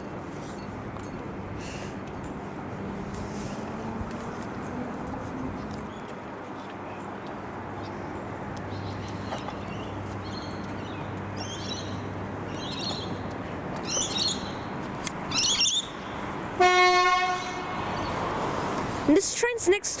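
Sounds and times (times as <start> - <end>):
birds chirping: 6.8 - 16.4
train horn blast: 16.6 - 17.9.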